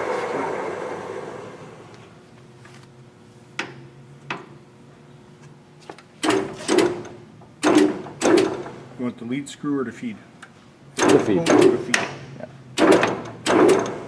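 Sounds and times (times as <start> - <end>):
lathe running down: 0.0 - 2.1
loud clunks of levers: 6.2 - 8.8, 11.0 - 12.2, 12.8 - 14.0.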